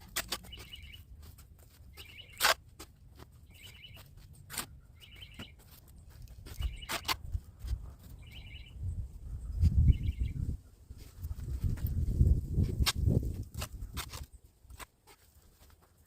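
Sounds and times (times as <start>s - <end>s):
bird trilled chirp: 0.5s - 1.1s, 1.9s - 2.4s, 3.4s - 4.1s, 5.0s - 5.6s, 6.6s - 7.0s, 8.2s - 8.9s, 9.8s - 10.5s.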